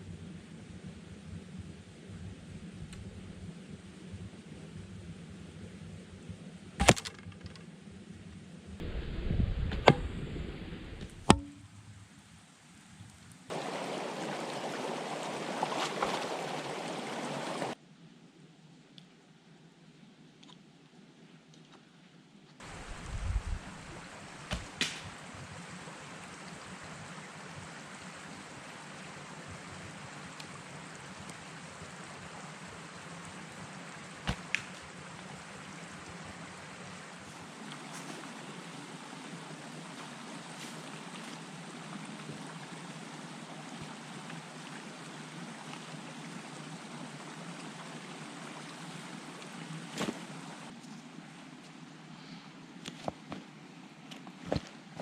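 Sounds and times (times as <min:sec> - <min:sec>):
bowstring release and arrow impact: 0:06.8 - 0:07.6, 0:09.3 - 0:10.3, 0:11.0 - 0:11.7, 0:24.5 - 0:25.2, 0:34.2 - 0:34.8
sharp knocks: 0:11.2 - 0:11.6
running water: 0:13.5 - 0:17.8, 0:22.6 - 0:50.8.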